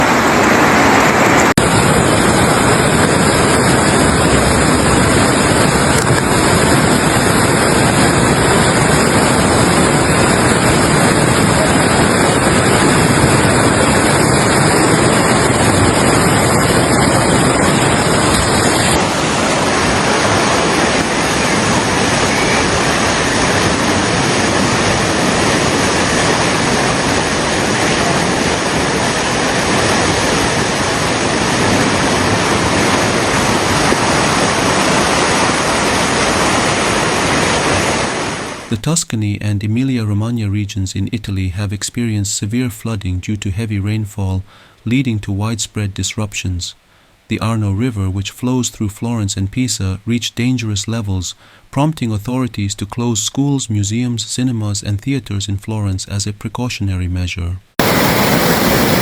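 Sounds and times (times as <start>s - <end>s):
fast-flowing floodwater rushing: 0.0s - 38.7s, 57.8s - 59.0s.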